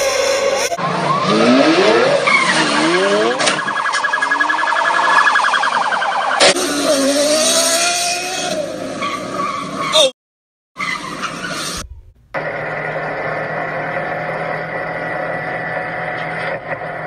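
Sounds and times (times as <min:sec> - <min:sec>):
car engine revving: 0:00.7 - 0:03.7, 0:06.3 - 0:09.0.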